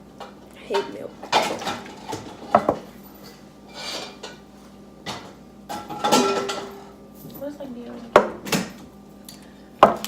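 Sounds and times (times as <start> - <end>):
kitchenware knocking and clinking: 0.8 - 2.9, 5.0 - 6.9.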